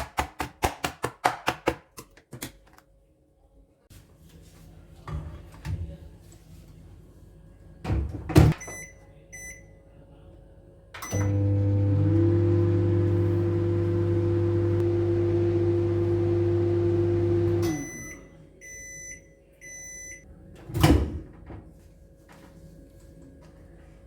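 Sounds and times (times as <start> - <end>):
microwave beeps: 8.6 - 9.8, 11.0 - 20.2
microwave oven humming: 11.0 - 19.0.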